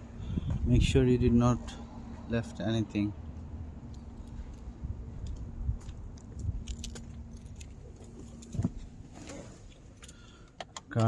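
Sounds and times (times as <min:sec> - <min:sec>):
small metallic clicks and rattles: 0:03.9 - 0:08.6
keys jingling: 0:06.6 - 0:08.6.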